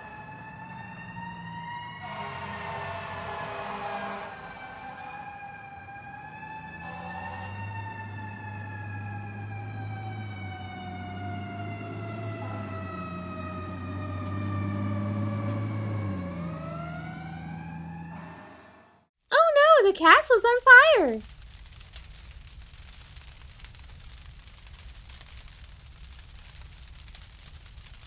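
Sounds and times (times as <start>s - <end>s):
fire engine siren wailing: 0.0s - 21.2s.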